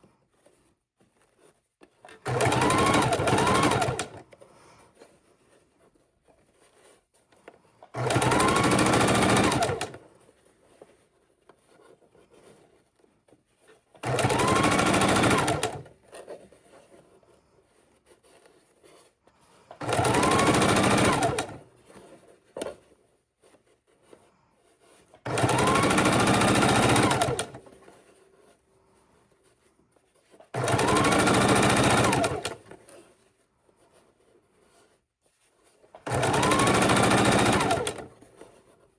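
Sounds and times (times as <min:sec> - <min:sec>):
sewing machine stitching: 0:02.0 - 0:04.4, 0:07.8 - 0:10.1, 0:13.6 - 0:17.0, 0:18.2 - 0:22.8, 0:24.8 - 0:28.5, 0:30.2 - 0:33.1, 0:35.7 - 0:38.8.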